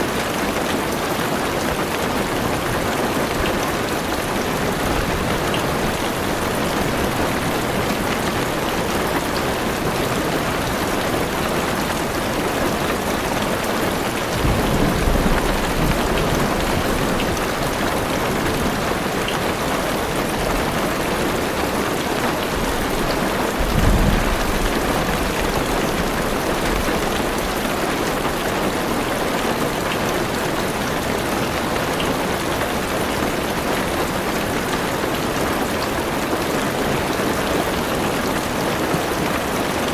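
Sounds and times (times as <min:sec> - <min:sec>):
heavy rain on car roof: 0:00.0 - 0:39.9
low rumbles of thunder: 0:14.2 - 0:17.8, 0:22.7 - 0:27.4.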